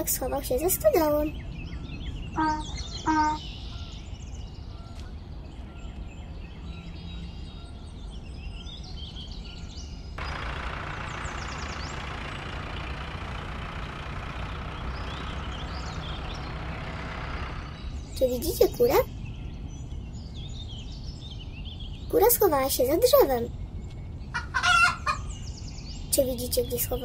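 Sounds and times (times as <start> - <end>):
birds chirping: 0.0 - 27.0
loud engine noise: 10.2 - 18.2
low engine rumble: 10.2 - 24.3.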